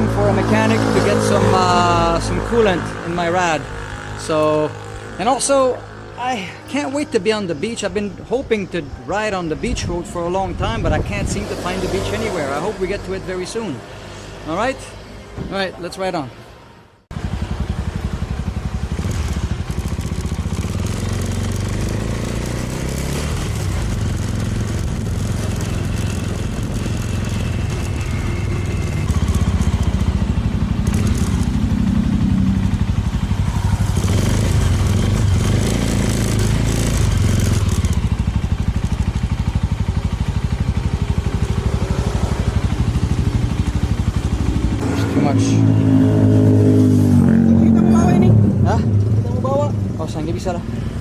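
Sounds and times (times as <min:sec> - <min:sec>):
small motorcycle engine running: 0:17.1 - 0:46.6.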